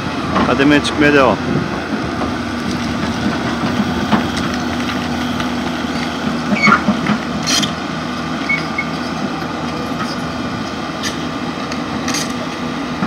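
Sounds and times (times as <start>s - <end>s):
excavator diesel engine: 0.0s - 13.0s
metallic knocks and squeaks: 5.9s - 7.8s, 8.4s - 9.2s.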